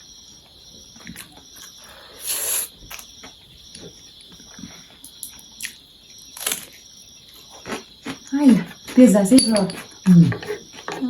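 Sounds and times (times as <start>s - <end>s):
crickets chirping: 0.0s - 11.0s
slurping noodles: 2.0s - 3.0s.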